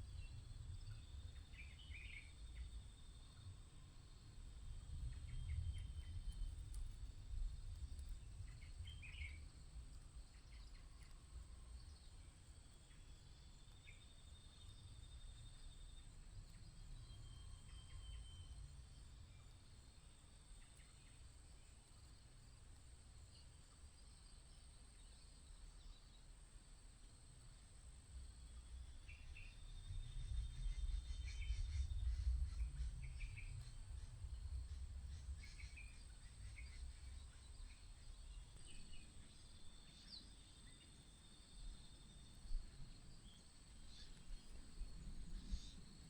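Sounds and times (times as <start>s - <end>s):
low wind rumble: 0.0s - 23.4s, 27.1s - 46.0s
high insect drone: 18.1s - 46.0s.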